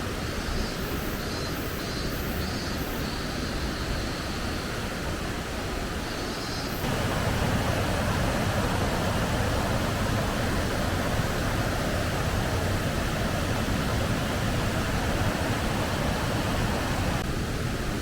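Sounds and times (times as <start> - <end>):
heavy water rushing in stream: 4.8 - 18.0.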